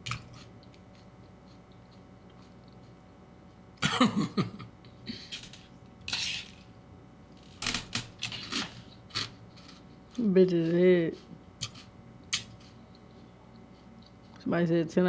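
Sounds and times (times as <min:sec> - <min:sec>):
person coughing: 0:03.8 - 0:05.3.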